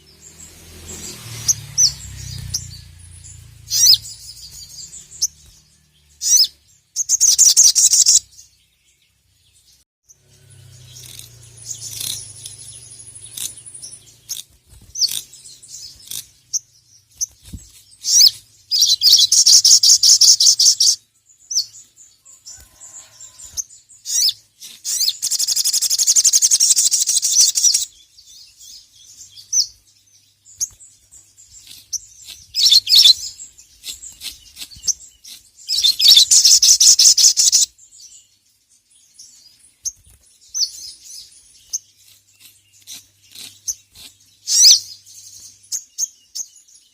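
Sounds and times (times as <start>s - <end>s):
bird chattering trills: 1.8s - 5.4s, 6.2s - 8.3s, 10.8s - 16.7s, 18.0s - 21.7s, 24.0s - 28.0s, 31.5s - 37.7s.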